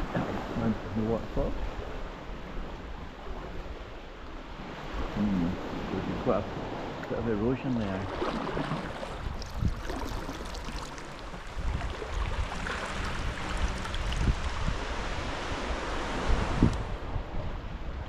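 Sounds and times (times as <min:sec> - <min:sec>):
sea water splashing: 0:03.0 - 0:16.7
wind buffeting microphone: 0:07.7 - 0:18.0.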